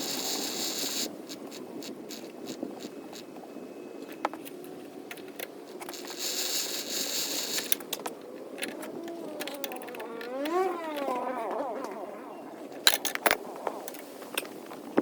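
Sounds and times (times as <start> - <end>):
short hiss: 0.0 - 2.9, 5.8 - 7.8
metal tools clinking: 12.8 - 14.0.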